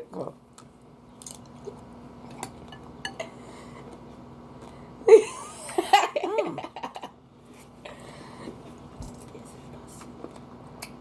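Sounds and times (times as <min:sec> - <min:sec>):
person laughing: 0:05.1 - 0:07.2.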